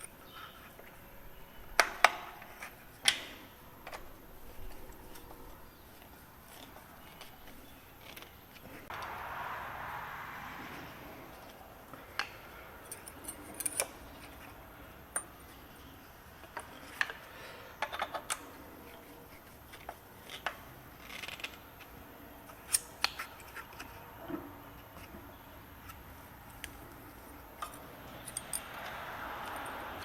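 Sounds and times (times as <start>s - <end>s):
metal tools clicking and clinking: 12.8s - 14.4s, 27.6s - 30.0s.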